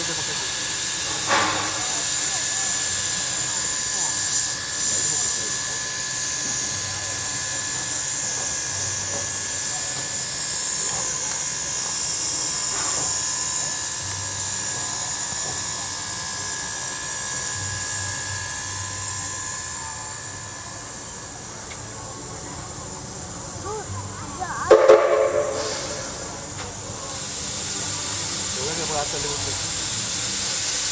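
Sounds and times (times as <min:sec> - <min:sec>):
train running with high hiss: 0:00.0 - 0:30.9
held ringing tones: 0:24.7 - 0:26.3.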